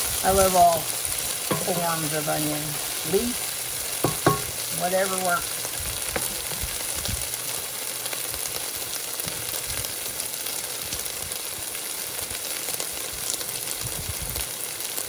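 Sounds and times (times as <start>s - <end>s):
onion and garlic sizzling in oil: 0.0s - 15.0s.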